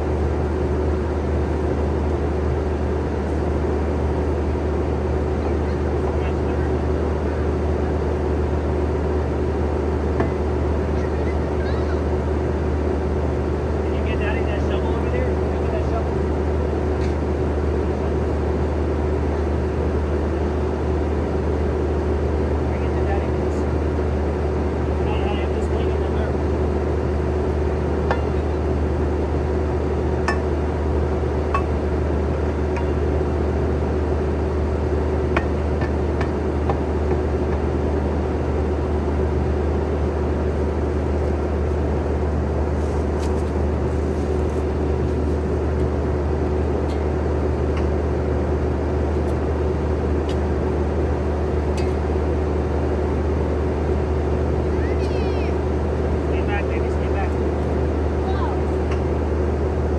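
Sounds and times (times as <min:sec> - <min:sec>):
skid steer engine running: 0:00.0 - 0:59.9.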